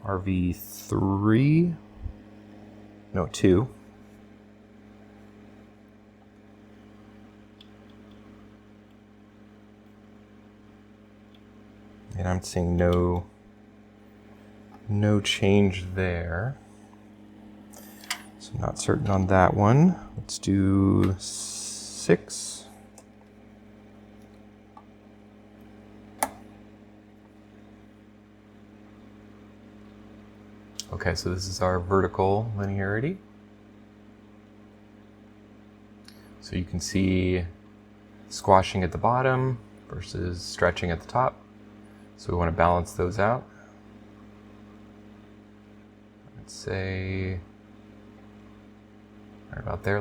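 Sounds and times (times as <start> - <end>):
monitor electrical hum: 0.0 - 50.0
potentiometer adjustment click: 12.7 - 13.3, 26.2 - 26.5.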